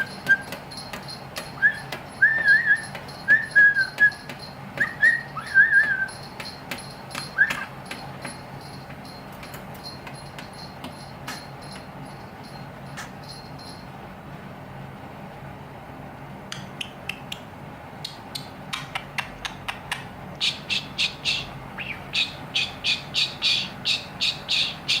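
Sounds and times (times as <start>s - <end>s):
small bell ringing: 0.0s - 14.3s.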